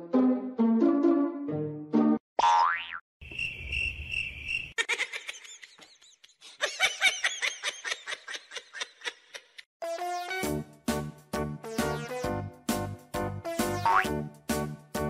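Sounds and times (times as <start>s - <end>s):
cricket chirps sound effect: 3.2s - 4.8s.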